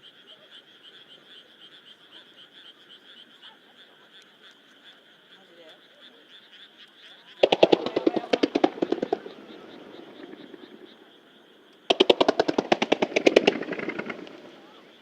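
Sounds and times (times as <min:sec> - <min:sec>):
frog chorus: 0:00.0 - 0:15.0
fireworks cracking: 0:07.4 - 0:11.1, 0:11.9 - 0:15.0.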